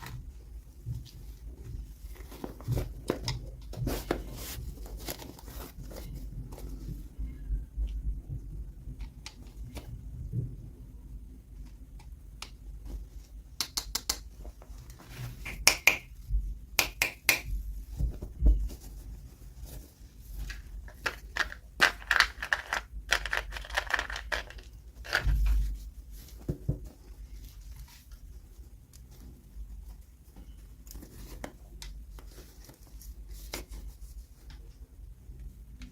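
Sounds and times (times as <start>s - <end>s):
plastic packaging clicks and taps: 13.6s - 14.3s
packaging crinkling and tearing: 20.5s - 25.4s.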